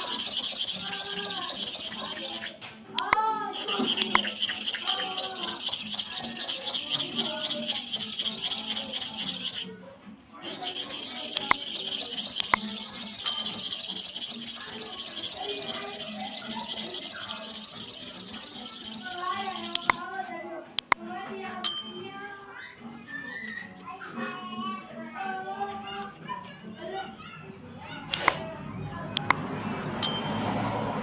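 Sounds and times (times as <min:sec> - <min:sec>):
clipper blade scraping on sharpener: 0:00.0 - 0:09.7, 0:10.4 - 0:21.0.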